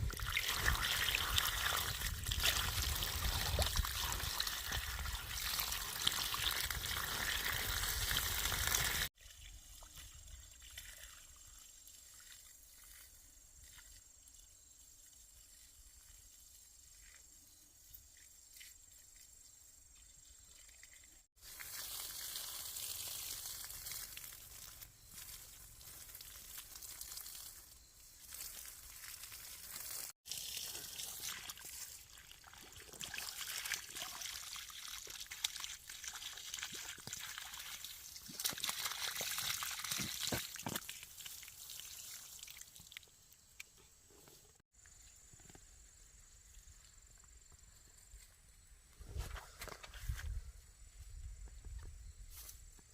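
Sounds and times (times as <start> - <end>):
water pouring and splashing: 0.0 - 14.1, 20.4 - 43.2.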